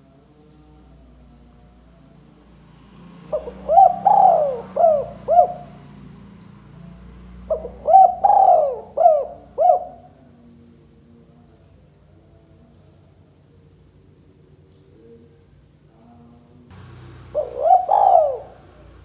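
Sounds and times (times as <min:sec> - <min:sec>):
dove cooing: 0:03.3 - 0:05.8, 0:07.5 - 0:10.1, 0:16.8 - 0:19.0.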